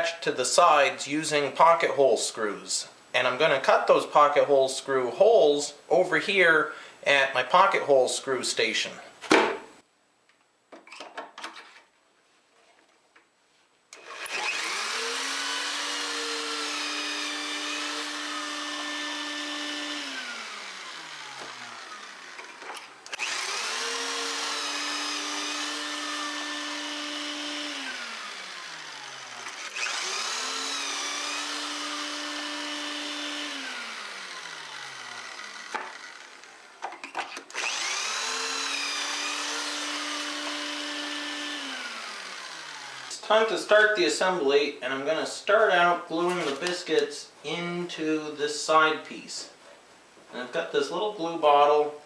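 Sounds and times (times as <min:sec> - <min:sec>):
electric drill boring holes: 0:14.0 - 0:43.2.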